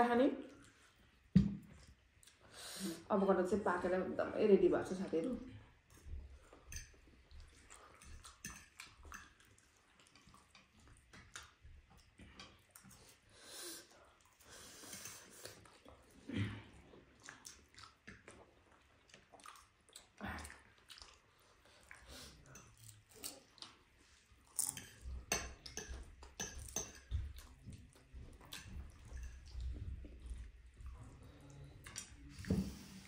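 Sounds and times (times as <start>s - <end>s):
quiet chewing of noodles: 0.4s - 3.1s, 5.3s - 33.0s.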